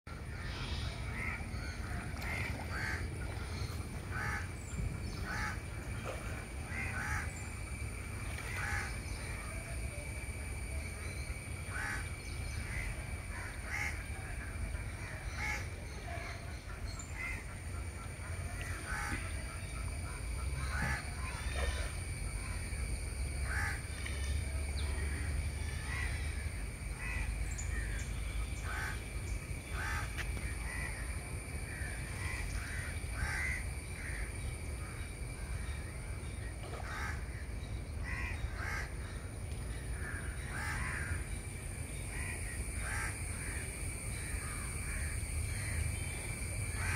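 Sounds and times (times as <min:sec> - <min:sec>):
birds harsh calls: 0:00.1 - 0:06.1, 0:23.4 - 0:30.9
faint high hum: 0:00.1 - 0:46.9
steady low rumble: 0:00.1 - 0:46.9.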